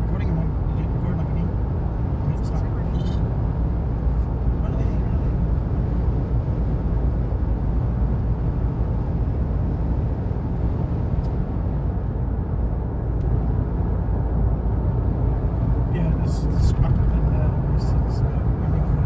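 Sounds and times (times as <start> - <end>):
vehicle road and engine rumble: 0.0 - 19.0.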